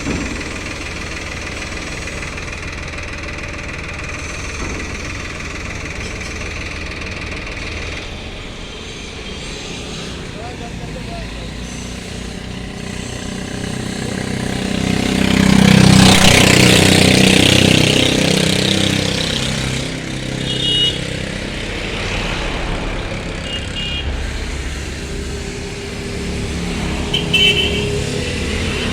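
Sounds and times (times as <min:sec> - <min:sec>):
vehicle engine passing by: 0:13.8 - 0:28.9.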